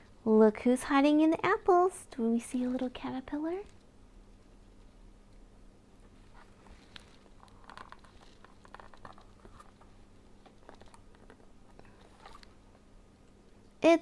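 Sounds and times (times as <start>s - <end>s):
cardboard book pages clicking and rustling: 6.4s - 12.6s.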